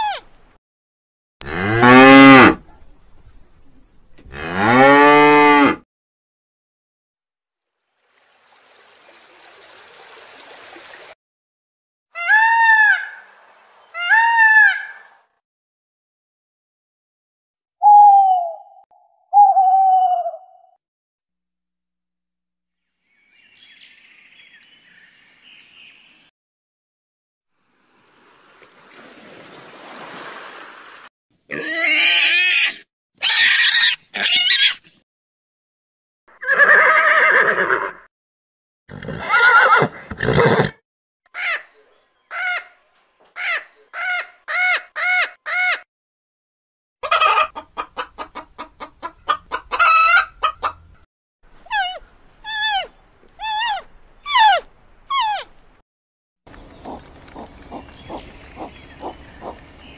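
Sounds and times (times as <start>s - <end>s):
loud harsh animal calls: 31.5s - 34.8s, 51.7s - 55.5s.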